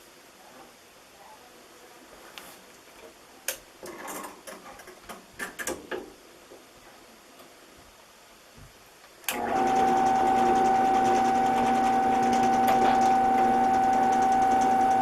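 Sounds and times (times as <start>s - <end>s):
drill press motor whine: 9.3s - 15.0s.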